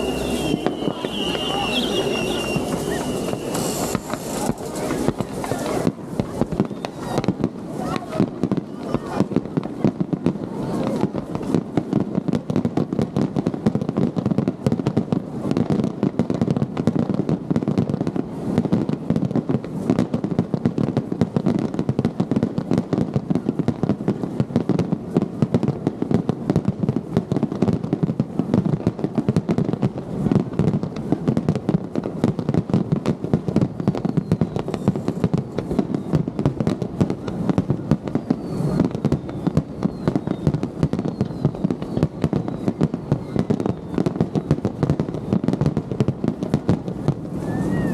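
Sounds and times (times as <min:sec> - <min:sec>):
fireworks whistling: 0:00.0 - 0:09.8, 0:26.6 - 0:47.9
fireworks booming and crackling: 0:00.0 - 0:47.9.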